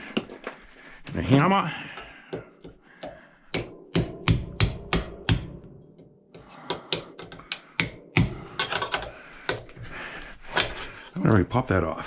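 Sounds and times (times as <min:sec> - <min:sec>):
hammer striking a chisel: 0:02.0 - 0:09.6.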